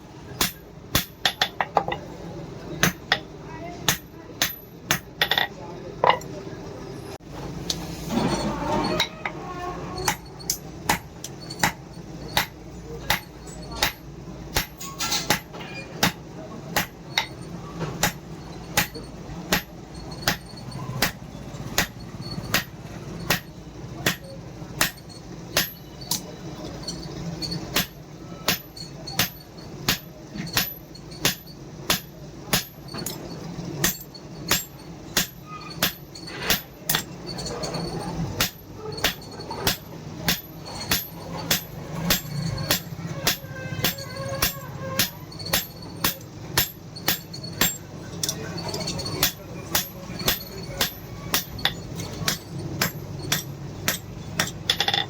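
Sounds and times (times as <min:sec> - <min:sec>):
hammer striking steel on anvil: 0:00.4 - 0:02.0, 0:02.8 - 0:06.3, 0:10.0 - 0:55.0.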